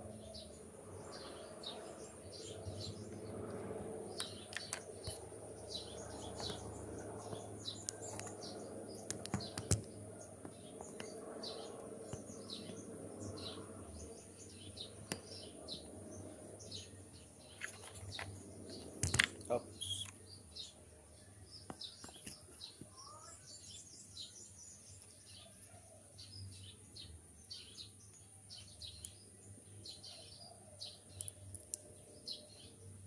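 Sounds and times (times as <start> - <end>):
steady low hum: 0.0 - 22.0
small birds chirping: 0.0 - 33.0
sharp clicks: 7.8 - 10.0, 17.6 - 20.2.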